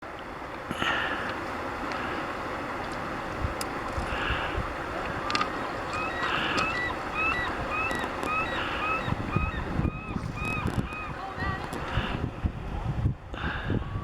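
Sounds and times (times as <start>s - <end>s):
river water rushing: 0.0s - 12.4s
bird calling: 5.2s - 11.9s.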